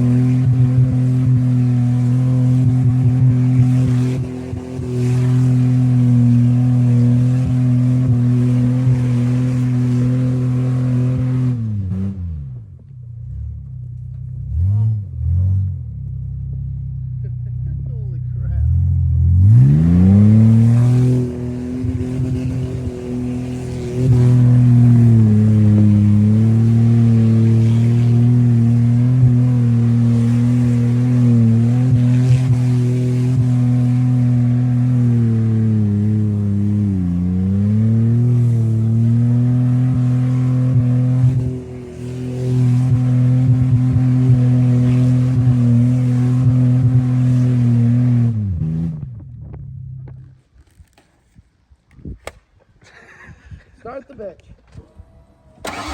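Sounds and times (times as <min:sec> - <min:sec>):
car engine revving hard: 0:00.0 - 0:12.4, 0:18.6 - 0:49.1, 0:55.6 - 0:55.9.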